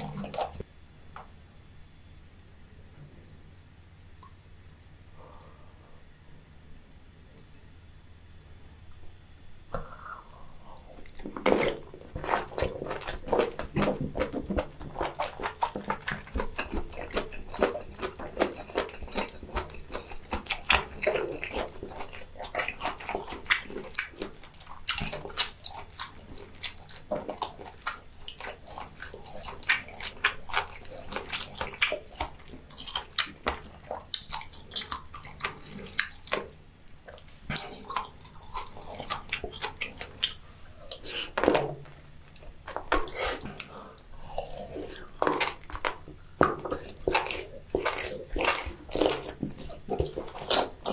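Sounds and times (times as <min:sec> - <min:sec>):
wet chewing and lip-smacking: 0:00.0 - 0:00.6, 0:10.9 - 0:50.9.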